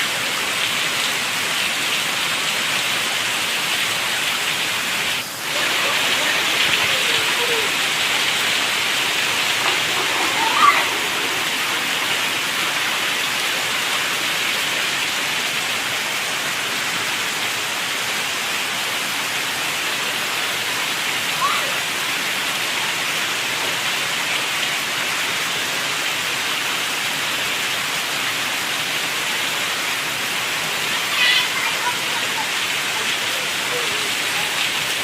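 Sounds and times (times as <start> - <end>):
steady rain falling: 0.0 - 35.0
high rising call: 5.4 - 13.4.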